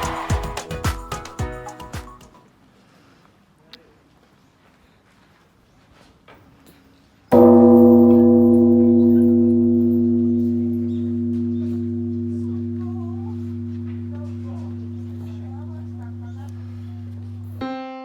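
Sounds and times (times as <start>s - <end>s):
deep bell strike ringing: 7.3s - 17.6s.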